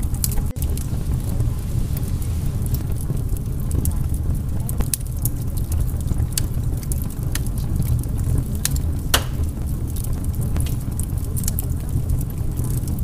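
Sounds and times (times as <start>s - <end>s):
sharp crackles: 0.0s - 13.0s
steady low rumble: 0.0s - 13.0s.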